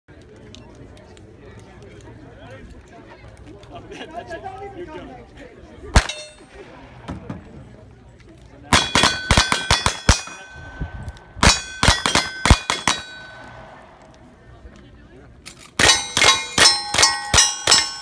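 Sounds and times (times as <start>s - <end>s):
steel targets clanging: 6.0s - 6.6s, 8.7s - 13.7s, 15.7s - 18.0s
rapid gunshots: 8.7s - 10.4s, 11.4s - 13.2s.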